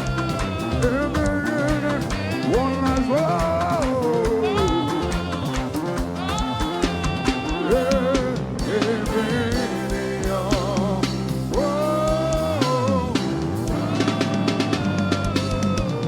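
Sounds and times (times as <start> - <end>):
bass guitar: 0.0 - 16.0
drum kit: 0.0 - 16.0
voices singing: 0.0 - 16.0.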